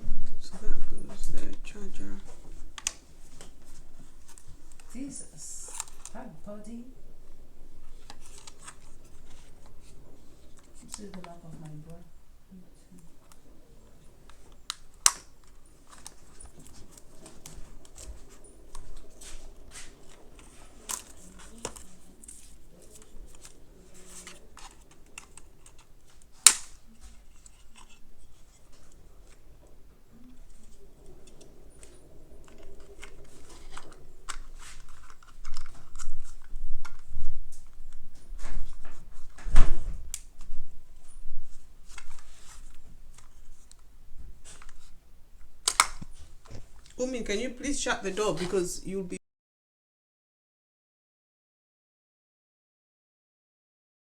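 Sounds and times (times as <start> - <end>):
packaging rustling: 0.2 - 48.9
sharp clicks of plastic parts: 2.7 - 3.6, 5.6 - 6.2, 7.9 - 9.9, 14.3 - 19.1, 20.0 - 29.4, 30.3 - 38.5, 44.4 - 47.0.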